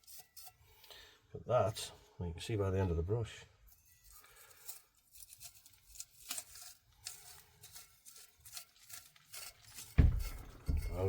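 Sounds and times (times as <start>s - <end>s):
brush scrubbing metal: 0.0s - 0.6s, 3.7s - 11.0s.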